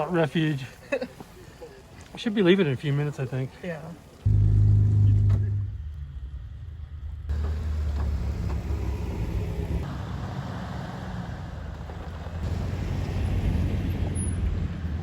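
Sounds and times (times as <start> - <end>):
car engine humming: 4.0 - 10.6.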